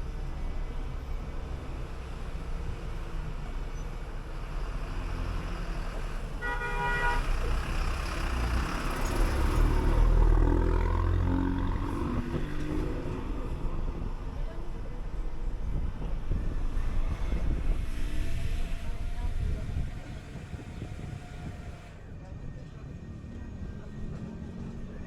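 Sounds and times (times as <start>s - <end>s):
bus engine running: 0.0s - 25.0s
road rumble: 0.0s - 25.0s
vehicle horn: 6.4s - 7.5s.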